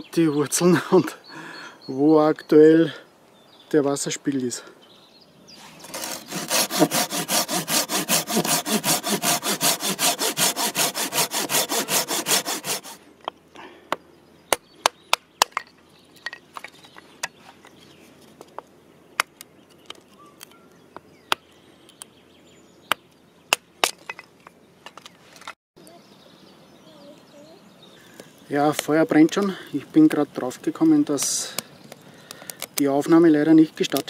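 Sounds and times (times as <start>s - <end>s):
handsaw cutting wood: 5.8s - 13.0s.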